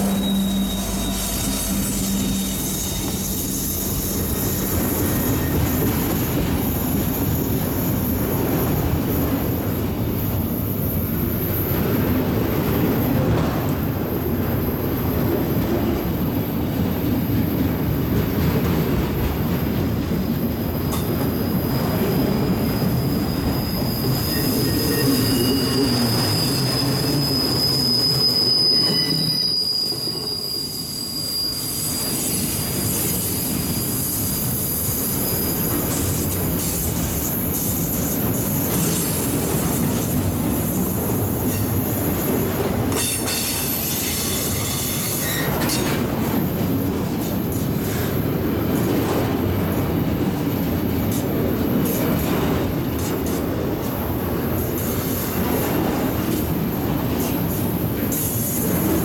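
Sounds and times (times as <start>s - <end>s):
wheel flange squeal: 0.0s - 7.5s, 20.9s - 46.0s
steel wheels rumbling on rail: 0.0s - 59.0s.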